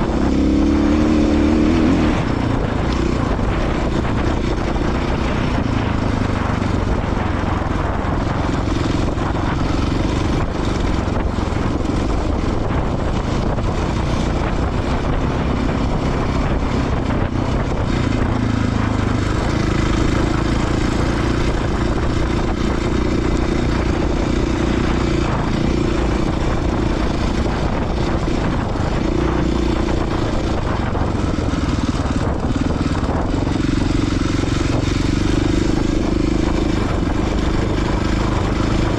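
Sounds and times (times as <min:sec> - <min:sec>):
motorcycle engine running: 0:00.0 - 0:38.9
wind and trail noise: 0:00.0 - 0:38.9.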